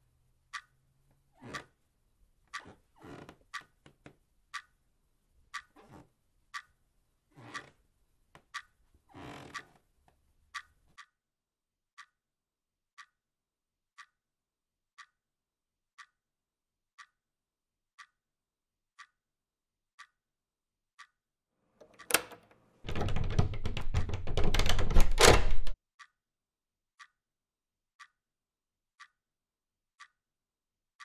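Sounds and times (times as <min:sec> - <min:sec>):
clock ticking: 0:00.0 - 0:01.9, 0:02.5 - 0:11.2, 0:11.9 - 0:26.2, 0:27.0 - 0:27.2, 0:28.0 - 0:28.2, 0:29.0 - 0:29.2, 0:30.0 - 0:30.2
sharp click: 0:21.8 - 0:22.6
door rattling at its handle: 0:22.0 - 0:25.8.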